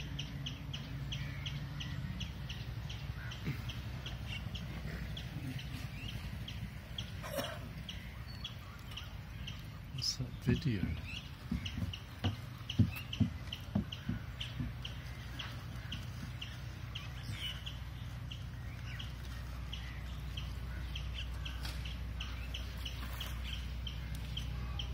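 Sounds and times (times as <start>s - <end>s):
bird chirping: 0.0s - 24.9s
low hum: 0.0s - 24.9s
sharp knocks: 10.8s - 15.5s.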